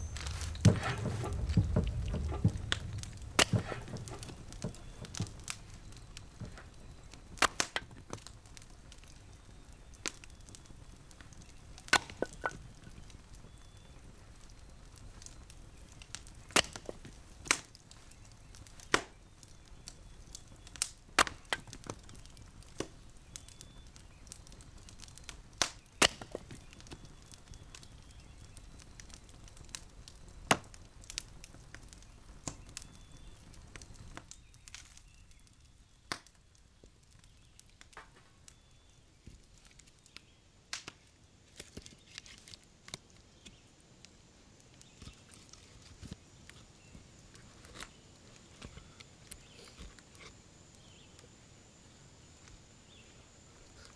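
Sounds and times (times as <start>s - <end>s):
low rumble: 0.0s - 6.0s
wood fire crackling and popping: 0.0s - 53.9s.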